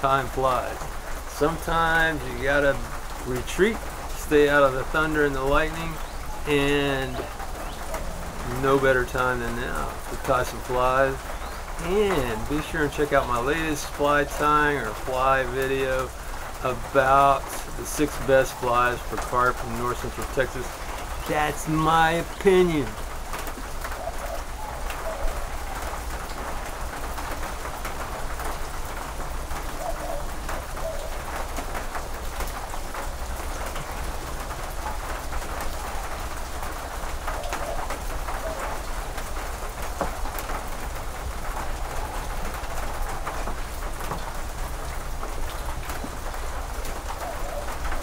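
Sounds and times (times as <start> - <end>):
rain on a metal roof: 0.0 - 48.0
dove cooing: 7.1 - 8.6, 23.5 - 26.2, 29.6 - 31.4, 37.2 - 39.0, 46.0 - 48.0.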